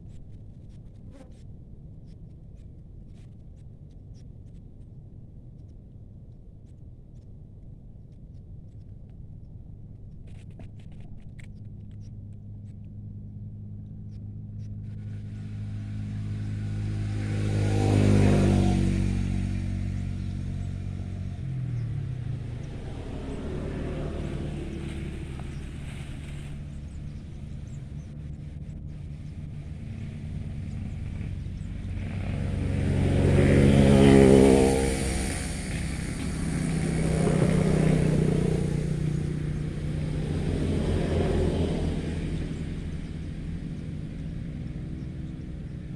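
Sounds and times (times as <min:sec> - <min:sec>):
vehicles passing: 0:10.3 - 0:45.9.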